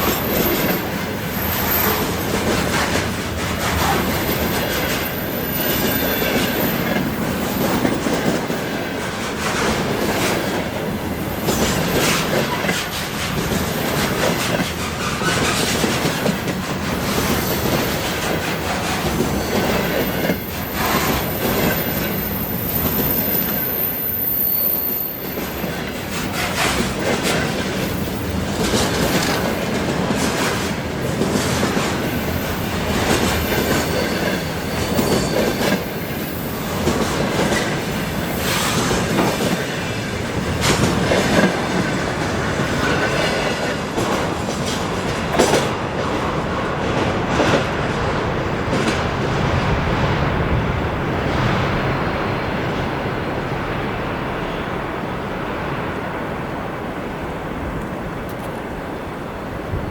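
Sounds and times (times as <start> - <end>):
high wheel squeal: 0.0 - 2.5, 3.6 - 8.0, 17.2 - 26.8, 32.0 - 37.0
train wheels knocking on rail joints: 5.8 - 21.8, 36.6 - 49.9.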